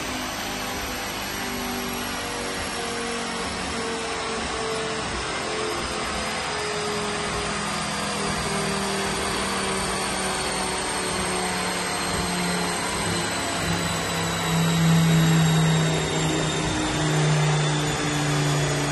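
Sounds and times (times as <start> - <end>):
car engine running on dyno: 0.0 - 18.9
rushing fan-like noise: 0.0 - 18.9.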